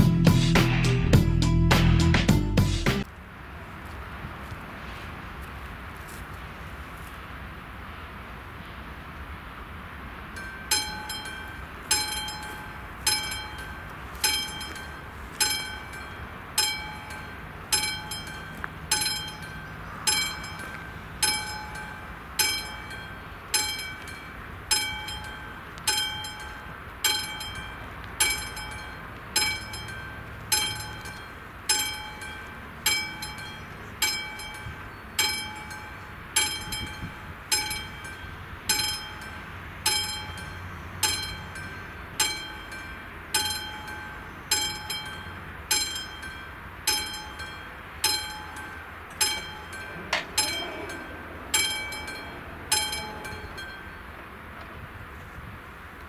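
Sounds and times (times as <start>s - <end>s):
level crossing bell ringing: 10.3s - 54.1s.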